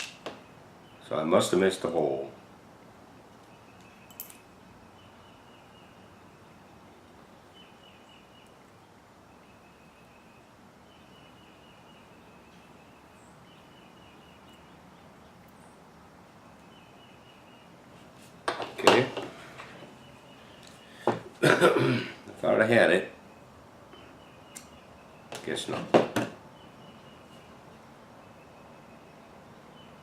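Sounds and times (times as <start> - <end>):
faint high chirping trill: 9.2 - 15.0, 26.5 - 30.0.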